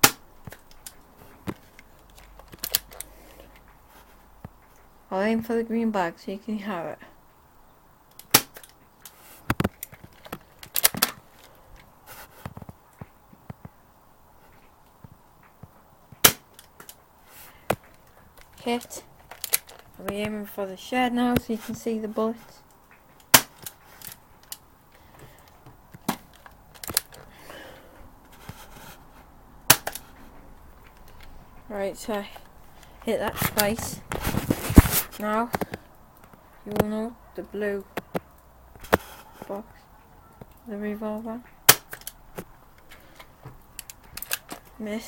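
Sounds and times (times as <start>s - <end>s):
bb gun revolver cracks: 0.0s - 3.4s, 8.1s - 11.9s, 16.2s - 17.0s, 17.7s - 20.2s, 23.2s - 24.6s, 25.6s - 27.3s, 29.7s - 30.2s, 41.6s - 42.9s, 43.6s - 44.7s
toy gun cocking and firing: 8.2s - 8.8s, 10.6s - 11.2s, 19.3s - 19.8s, 23.3s - 24.2s, 29.7s - 30.0s, 41.7s - 42.2s, 43.8s - 44.6s.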